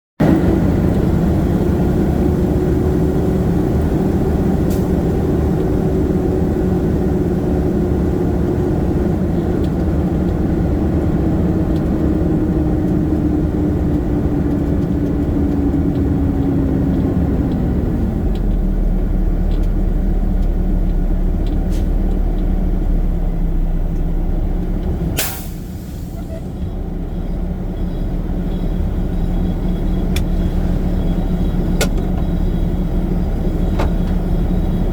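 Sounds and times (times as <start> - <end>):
garbage truck diesel engine: 0.2 - 34.9
air brake hiss: 25.2 - 26.5.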